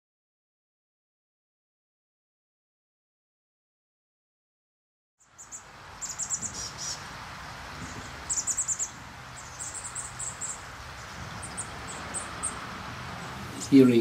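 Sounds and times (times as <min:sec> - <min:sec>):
bird chirping: 0:05.2 - 0:14.0
steady background hiss: 0:05.2 - 0:14.0.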